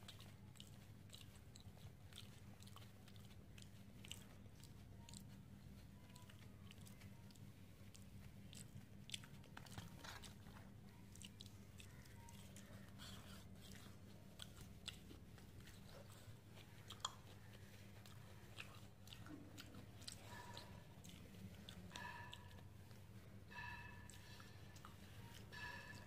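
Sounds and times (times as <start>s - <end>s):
chewing with mouth clicks: 0.0s - 26.0s
steady low hum: 0.0s - 26.0s.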